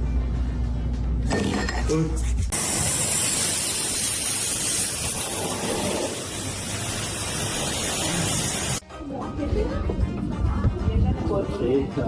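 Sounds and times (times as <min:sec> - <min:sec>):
water spraying hiss: 0:02.6 - 0:08.8.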